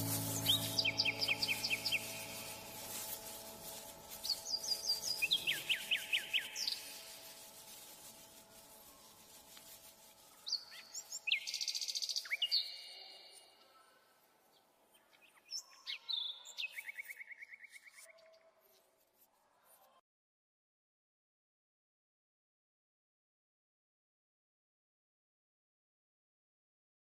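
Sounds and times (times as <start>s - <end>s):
background music: 0.0s - 8.8s
songbirds chirping: 0.0s - 18.4s.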